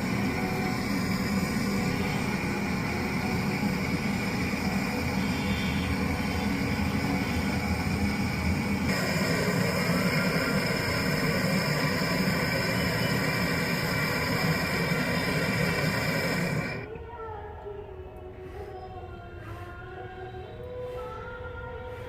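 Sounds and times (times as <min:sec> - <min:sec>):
freezer compressor humming: 0:00.0 - 0:16.9.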